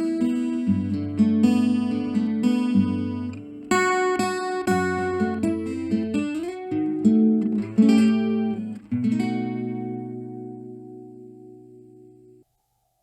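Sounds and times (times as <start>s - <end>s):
acoustic guitar chords: 0.0s - 12.4s.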